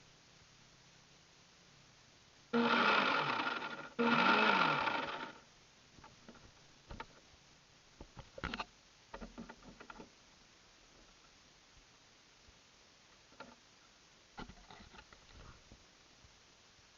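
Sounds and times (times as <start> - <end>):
small electric motor whirring: 2.6 - 5.4
faint clicks and knocks: 6.0 - 7.3, 8.0 - 11.4, 13.2 - 13.6, 14.4 - 15.8.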